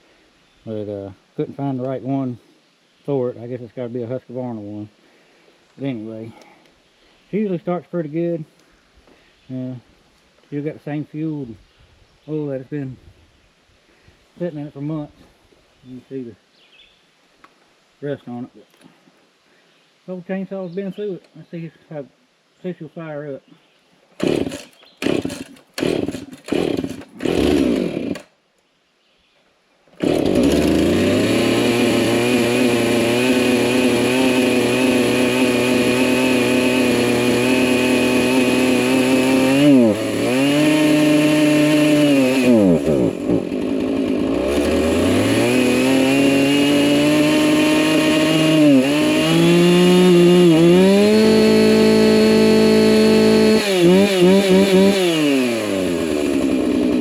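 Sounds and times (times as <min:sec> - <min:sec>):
chainsaw engine running: 0:24.2 - 0:28.3, 0:30.0 - 0:57.0
chainsaw pull-start: 0:24.2 - 0:28.3, 0:30.0 - 0:57.0.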